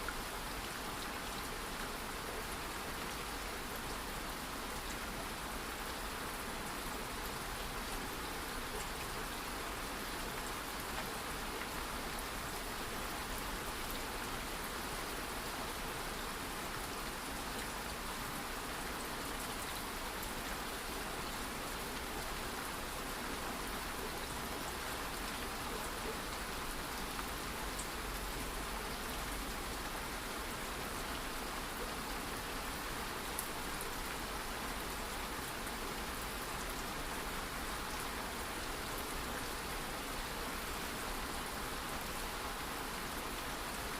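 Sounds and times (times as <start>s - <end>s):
light rain falling: 0.0s - 43.9s.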